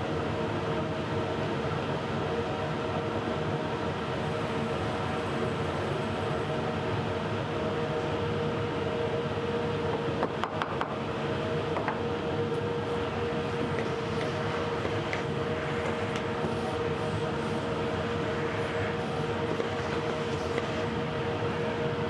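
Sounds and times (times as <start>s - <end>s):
router cutting with high whine: 12.8s - 22.0s.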